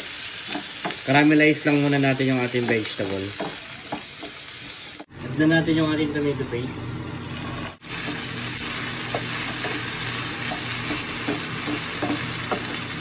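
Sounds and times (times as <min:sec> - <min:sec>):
vegetables sizzling in pan: 0:00.0 - 0:05.5, 0:07.4 - 0:13.0
spatula scraping and tapping: 0:09.0 - 0:13.0.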